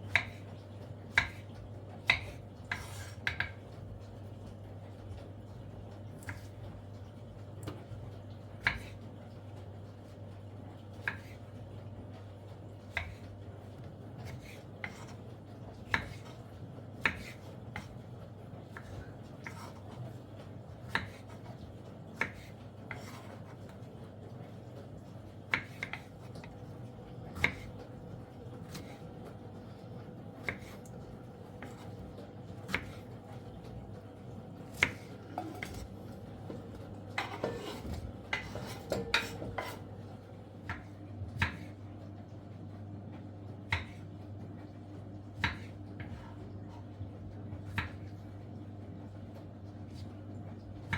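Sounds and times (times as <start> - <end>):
dishes and cutlery clinking: 35.2 - 39.9.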